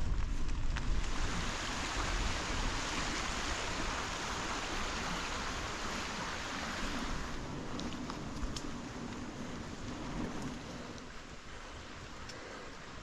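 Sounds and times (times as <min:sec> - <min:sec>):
steady rushing noise: 0:00.0 - 0:13.0
faint ticks: 0:07.6 - 0:13.0.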